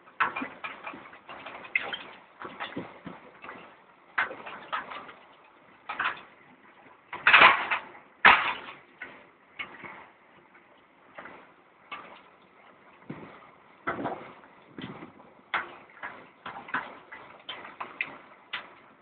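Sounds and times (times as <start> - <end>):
metal clanks and rattles: 0.0 - 10.2.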